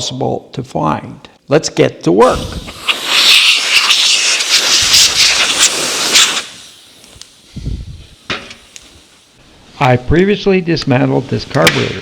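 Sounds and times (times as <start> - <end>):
loud rushing hiss of air: 2.2 - 9.9.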